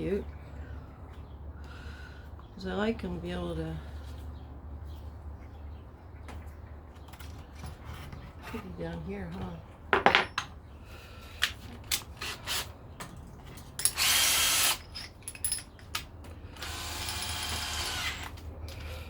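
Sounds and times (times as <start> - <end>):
tools clicking and knocking: 13.0 - 16.3
power drill running: 13.9 - 14.8, 16.6 - 18.4.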